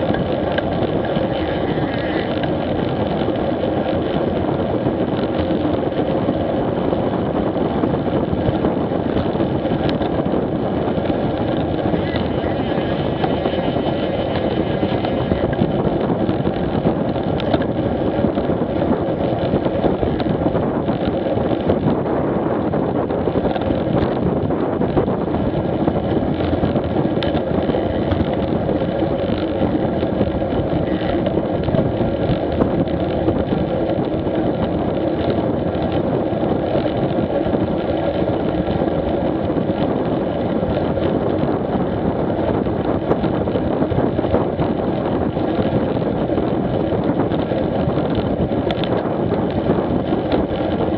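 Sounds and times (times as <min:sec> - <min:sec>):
motorcycle engine running: 0:00.0 - 0:50.9
wind rush: 0:00.0 - 0:50.9.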